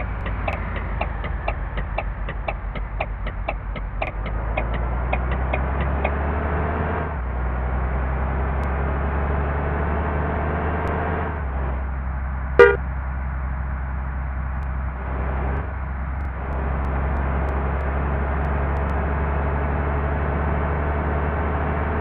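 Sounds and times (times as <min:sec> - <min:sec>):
light regular ticking: 0:00.0 - 0:06.2
diesel engine rumbling: 0:00.0 - 0:22.0.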